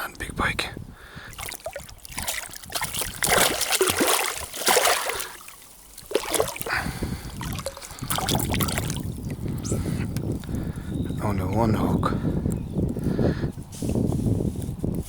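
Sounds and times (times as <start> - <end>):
water splashing and trickling: 1.2 - 11.8.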